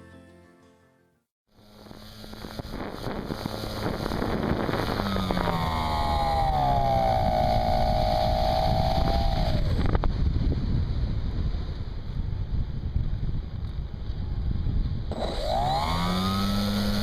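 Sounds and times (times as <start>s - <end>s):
model airplane motor whine: 1.5s - 10.3s, 14.0s - 17.0s
wind rushing over microphone: 1.6s - 17.0s.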